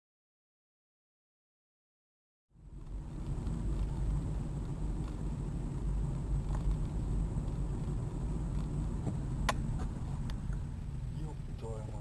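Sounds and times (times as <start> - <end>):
car engine and road noise: 2.5 - 12.0.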